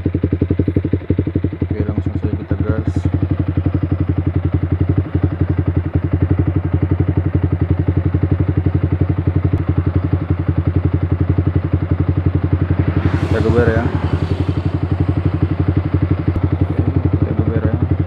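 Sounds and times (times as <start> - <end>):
motorcycle engine idling: 0.0 - 2.8.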